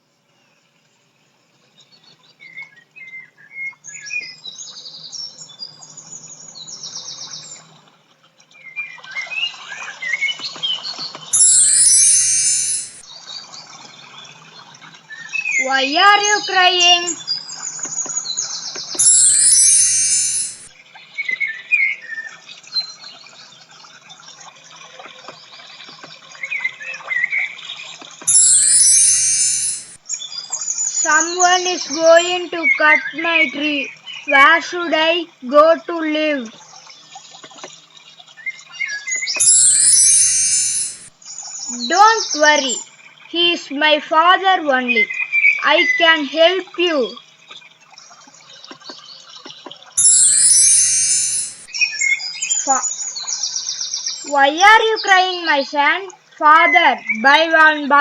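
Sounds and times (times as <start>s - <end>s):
bright gliding sound effect: 11.4s - 13.0s, 19.0s - 20.7s, 28.3s - 30.0s, 39.4s - 41.1s, 50.0s - 51.7s.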